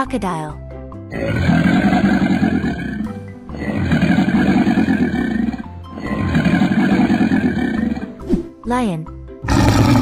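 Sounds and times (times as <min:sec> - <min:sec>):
cartoon animal roar: 0:01.1 - 0:08.2, 0:09.4 - 0:10.0.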